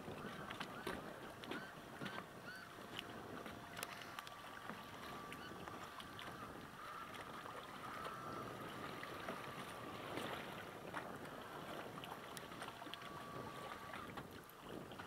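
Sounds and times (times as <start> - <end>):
wind and water hiss: 0.0 - 15.0
electric motor whining: 12.8 - 14.2.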